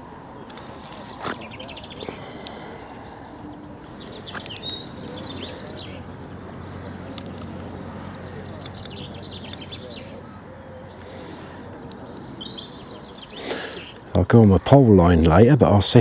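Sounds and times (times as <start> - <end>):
small birds chirping: 0.0 - 16.0
faint clicks: 7.1 - 7.8.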